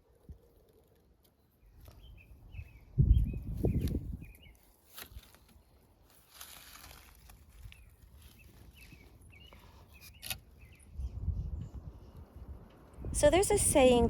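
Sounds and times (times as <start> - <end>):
bird chirps: 7.8 - 11.2.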